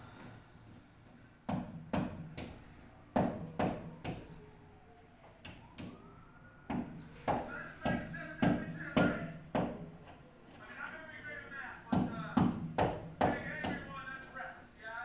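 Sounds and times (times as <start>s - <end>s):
tool strikes on a hard surface: 11.9s - 13.9s.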